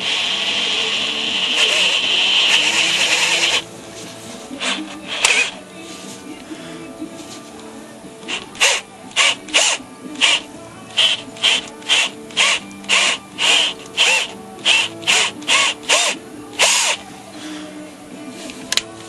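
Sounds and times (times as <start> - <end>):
power drill whining in bursts: 0.0 - 3.7, 4.6 - 5.6, 8.2 - 17.1.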